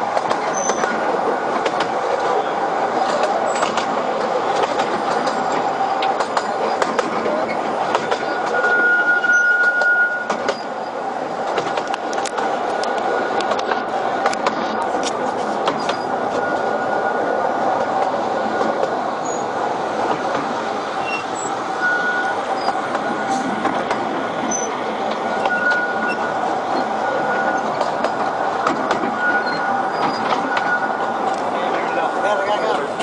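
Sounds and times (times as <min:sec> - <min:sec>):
train wheels rattling on rails: 0:00.0 - 0:33.0
wheel squeals: 0:00.4 - 0:01.0, 0:05.2 - 0:11.0, 0:18.6 - 0:19.6, 0:21.0 - 0:22.9, 0:24.4 - 0:28.1, 0:29.1 - 0:31.2.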